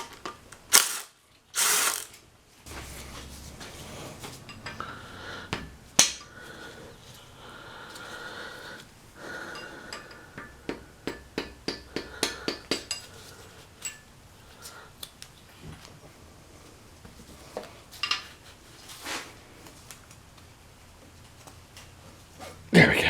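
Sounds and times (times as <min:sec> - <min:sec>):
metal tools tapping on metal: 0:04.4 - 0:04.8, 0:09.5 - 0:13.1.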